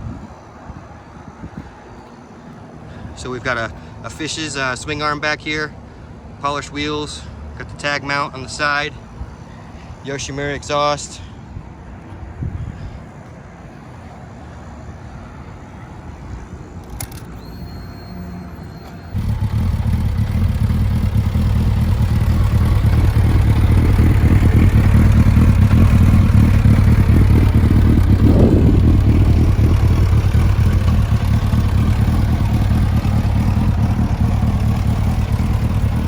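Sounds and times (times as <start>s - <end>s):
motorcycle engine starting and idling: 16.8s - 36.0s.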